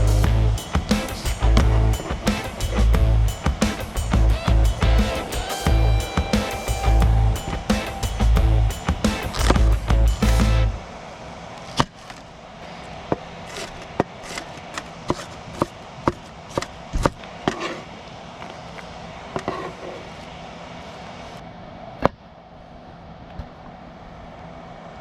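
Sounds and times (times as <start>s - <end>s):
background music: 0.0s - 10.8s.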